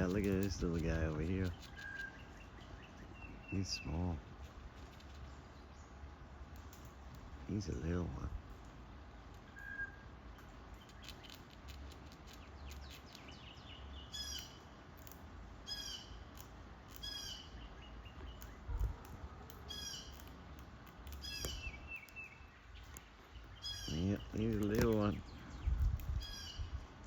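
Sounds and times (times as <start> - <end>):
bird calling: 0.0 - 6.0, 9.4 - 11.6, 12.2 - 14.8, 15.6 - 20.3, 21.1 - 26.8.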